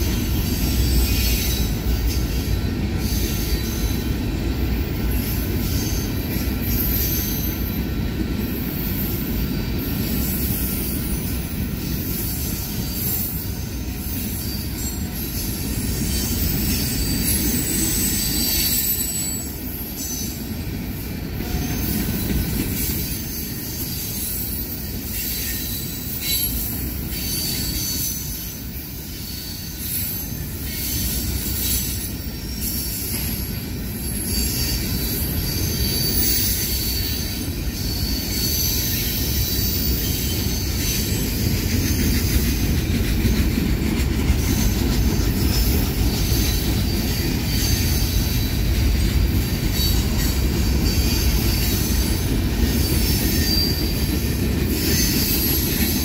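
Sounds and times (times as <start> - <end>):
train wheels rumbling on rail: 0.0 - 56.0
high wheel squeal: 9.8 - 20.4, 21.4 - 42.9, 44.3 - 56.0.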